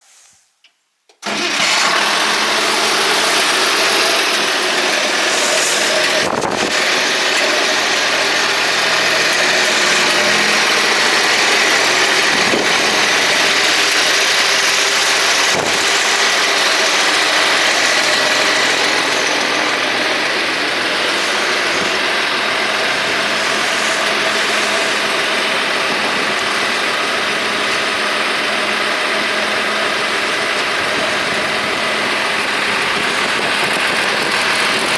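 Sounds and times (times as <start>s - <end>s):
tractor diesel engine idling: 1.2s - 34.9s.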